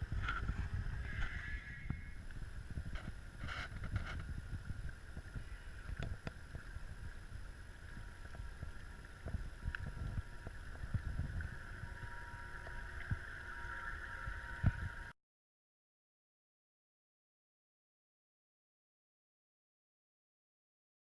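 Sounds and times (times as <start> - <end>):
wind rumble on microphone: 0.0 - 15.1
model boat motor whining: 11.6 - 15.1.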